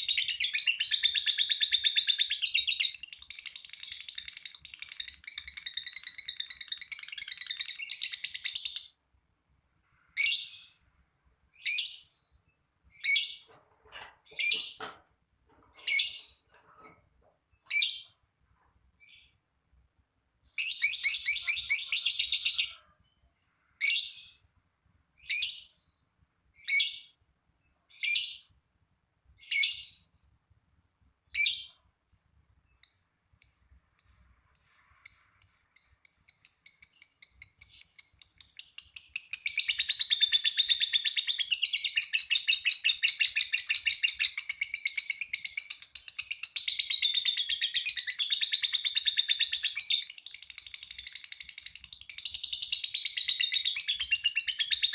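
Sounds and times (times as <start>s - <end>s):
lovebird chattering: 0.0s - 9.0s, 32.8s - 54.9s.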